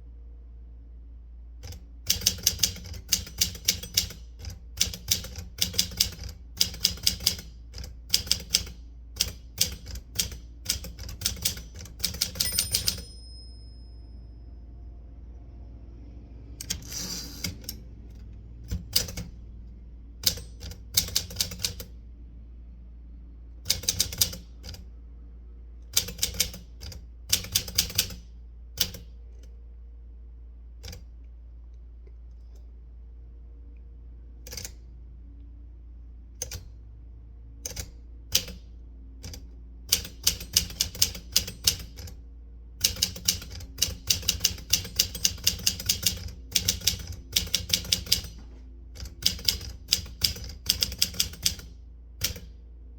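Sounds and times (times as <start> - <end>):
typewriter keys clicking: 1.6 - 13.1, 18.7 - 19.3, 20.2 - 21.9, 23.7 - 24.8, 26.0 - 28.2, 39.2 - 42.2, 42.8 - 48.4, 49.0 - 52.5.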